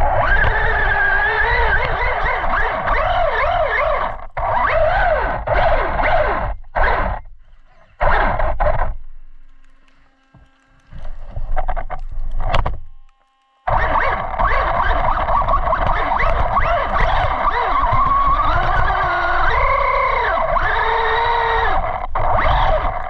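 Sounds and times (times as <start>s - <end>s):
electric motor whining: 0.0s - 23.0s
tyres on ground: 9.3s - 23.0s.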